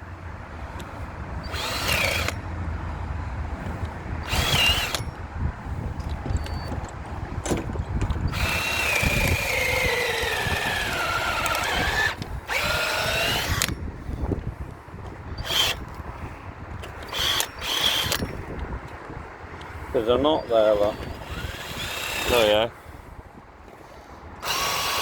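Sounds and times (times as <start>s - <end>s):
power tool shaping wood: 8.3s - 13.7s, 20.7s - 22.6s, 24.4s - 25.0s.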